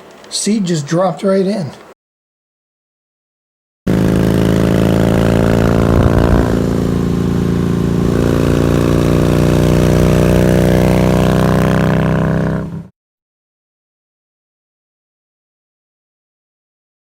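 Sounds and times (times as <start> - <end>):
engine running: 3.9 - 12.9.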